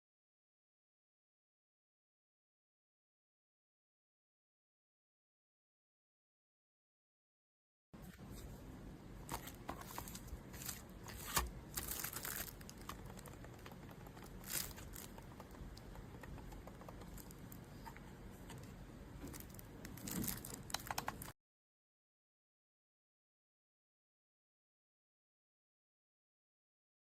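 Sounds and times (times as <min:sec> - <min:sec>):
crinkling and rustling handling: 0:09.2 - 0:21.3.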